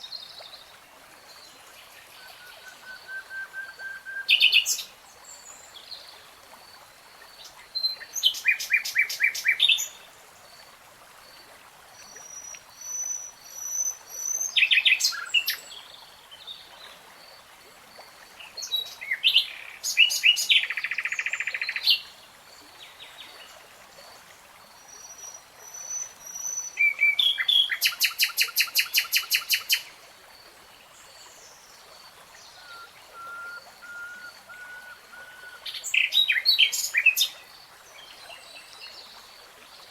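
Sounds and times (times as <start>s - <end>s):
songbirds singing: 32.4s - 37.4s.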